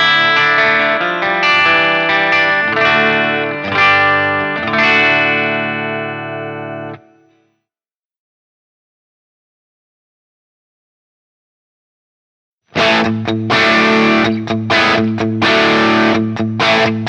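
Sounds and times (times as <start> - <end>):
overdriven electric guitar chords: 0.0 - 7.3, 12.7 - 17.0.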